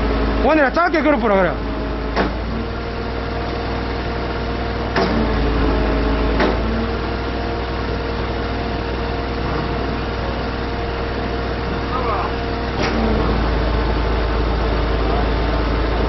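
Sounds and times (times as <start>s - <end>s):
truck diesel engine idling: 0.0s - 16.0s
sharp knocks: 2.1s - 2.5s, 6.4s - 6.7s.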